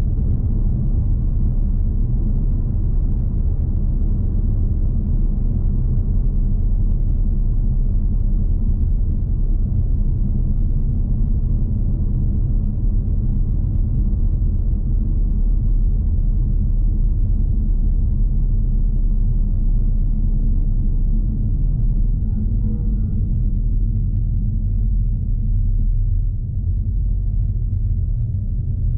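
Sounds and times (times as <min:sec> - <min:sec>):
car driving rumble: 0:00.0 - 0:28.9.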